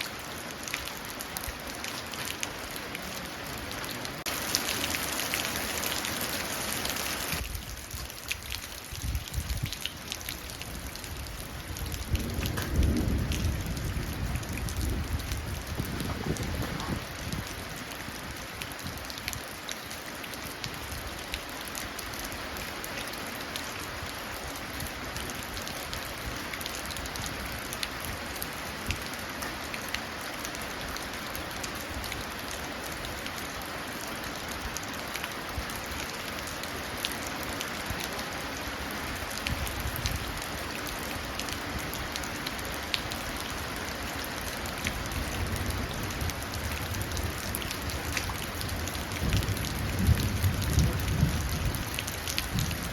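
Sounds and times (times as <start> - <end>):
rain splashing into a puddle: 0.0 - 52.9
low rumble of thunder: 10.6 - 17.6, 48.6 - 52.9.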